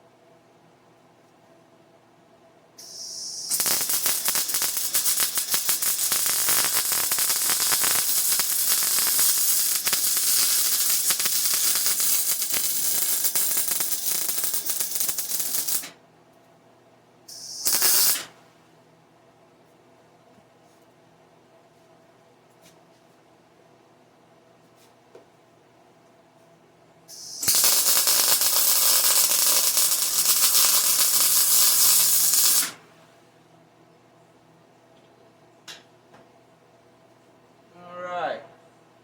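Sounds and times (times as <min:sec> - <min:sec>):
welder gas hiss: 0:02.8 - 0:15.9, 0:17.3 - 0:18.3, 0:27.1 - 0:32.8
welding arc crackling: 0:02.8 - 0:15.9, 0:17.3 - 0:18.3, 0:27.1 - 0:32.8.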